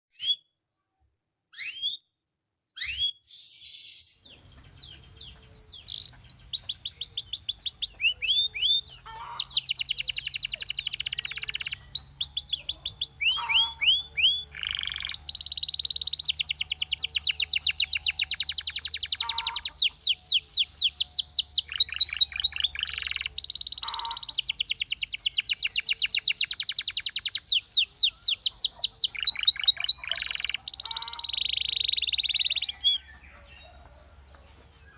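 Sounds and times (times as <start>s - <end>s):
canary singing trills: 2.8s - 34.9s.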